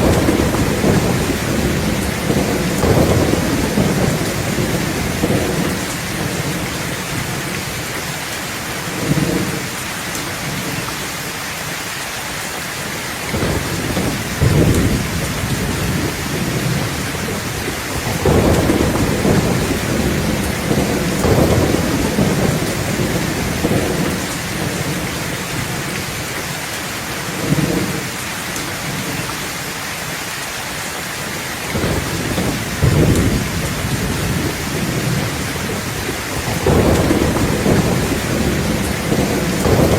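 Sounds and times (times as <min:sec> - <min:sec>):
thunder rumbling: 0:00.0 - 0:07.8, 0:13.3 - 0:26.3, 0:31.7 - 0:39.9
steady rain falling: 0:00.0 - 0:39.9.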